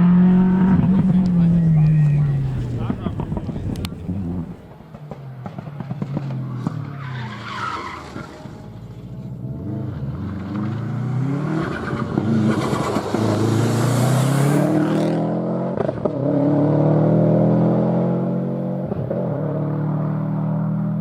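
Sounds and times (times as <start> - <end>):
rally car engine accelerating: 0.0 - 21.0.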